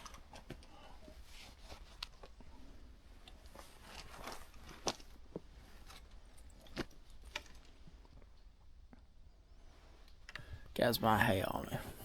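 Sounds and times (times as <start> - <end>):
faint crunches and clicks: 3.2 - 9.0.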